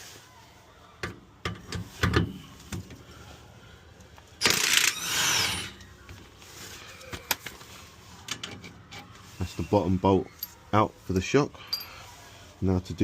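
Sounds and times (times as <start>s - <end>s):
impact wrench burst: 4.4s - 5.8s.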